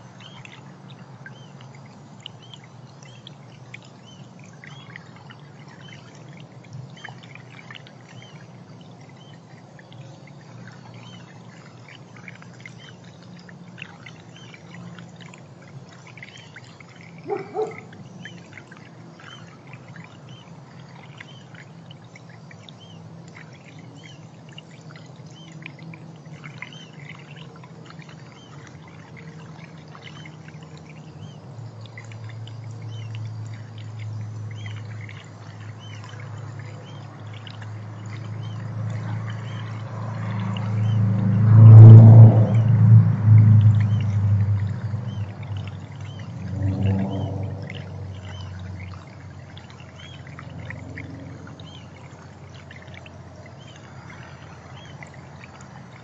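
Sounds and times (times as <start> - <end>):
steady low hum: 0.0 - 56.0
small birds chirping: 15.9 - 25.6.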